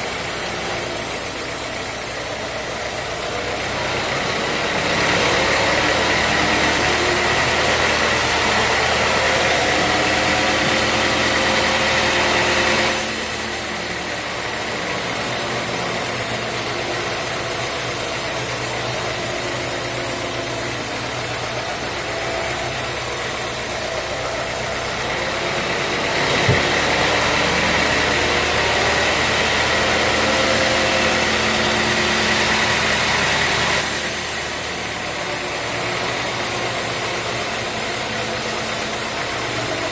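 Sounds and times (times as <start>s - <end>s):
sawmill machinery whining: 0.0s - 39.9s
short knock: 26.4s - 26.7s.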